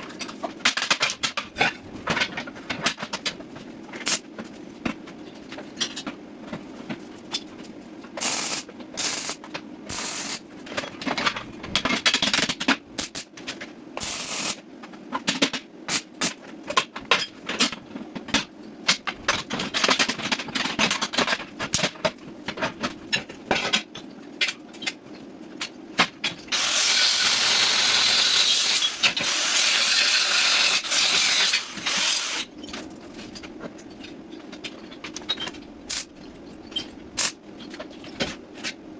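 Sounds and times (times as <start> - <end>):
continuous arc hiss: 0.0 - 38.9
welding arc crackling: 8.2 - 10.4, 14.0 - 14.6.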